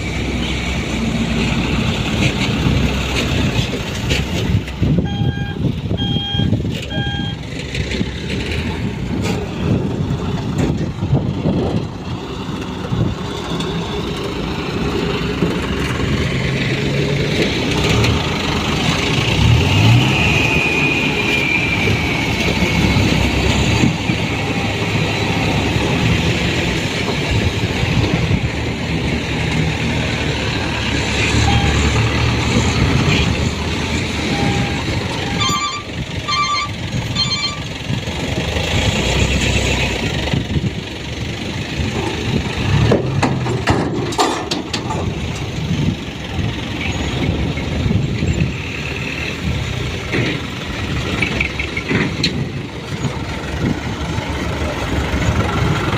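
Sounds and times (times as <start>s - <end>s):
dump truck diesel engines: 0.0s - 55.9s
reversing alarm beeping: 5.0s - 7.5s, 31.4s - 32.0s, 34.2s - 37.7s.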